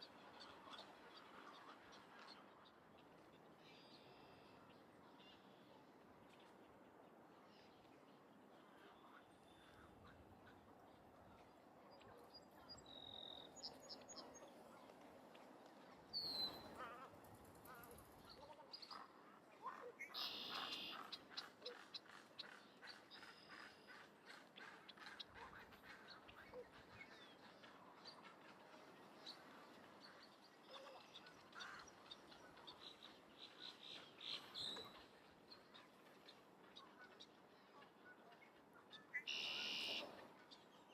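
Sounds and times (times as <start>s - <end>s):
soft outdoor hiss: 27.0s - 40.9s.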